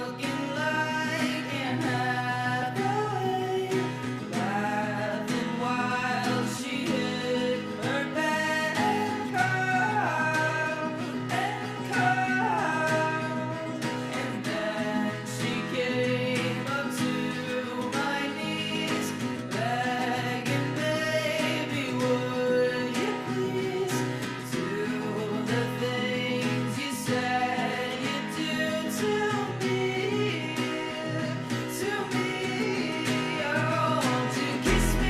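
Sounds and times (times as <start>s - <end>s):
acoustic guitar picking: 0.0s - 35.0s.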